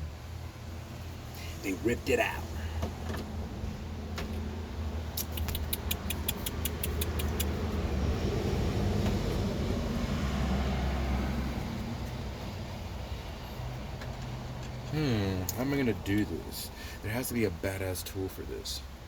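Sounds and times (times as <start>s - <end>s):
motor vehicle passing by: 1.0s - 15.9s.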